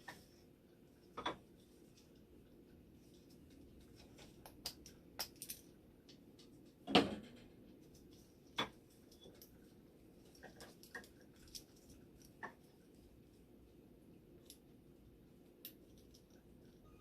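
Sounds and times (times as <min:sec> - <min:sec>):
faint steady hum: 0:00.0 - 0:17.0
small hard parts clicking and knocking: 0:03.1 - 0:09.6, 0:10.2 - 0:12.7.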